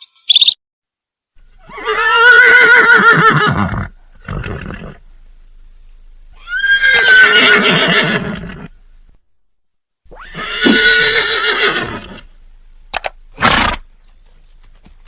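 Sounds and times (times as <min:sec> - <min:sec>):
horse whinnying: 0:01.6 - 0:05.0, 0:06.4 - 0:08.7, 0:10.1 - 0:12.3, 0:13.4 - 0:13.8.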